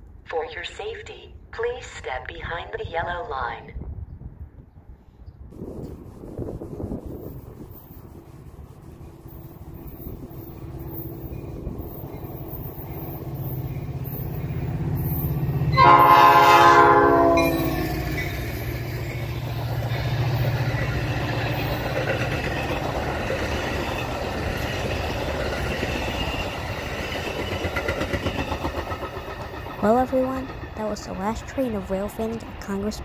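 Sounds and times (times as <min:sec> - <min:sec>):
train wheels rumbling on rail: 0:05.5 - 0:33.0
train horn blast: 0:15.6 - 0:18.6.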